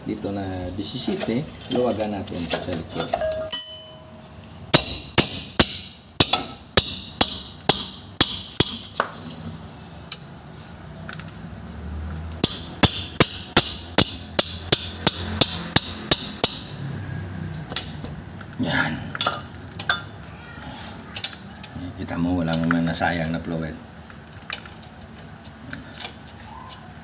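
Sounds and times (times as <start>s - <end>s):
sharp metallic knocks: 3.1s - 9.0s, 12.4s - 16.8s.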